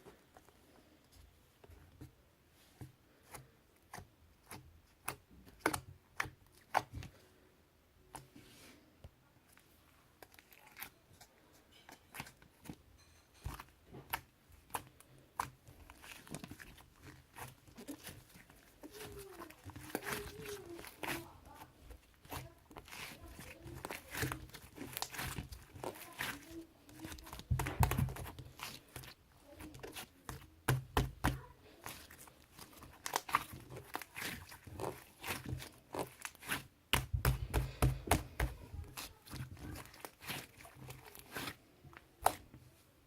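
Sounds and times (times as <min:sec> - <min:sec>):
slime squished by hand: 0:13.5 - 0:42.6.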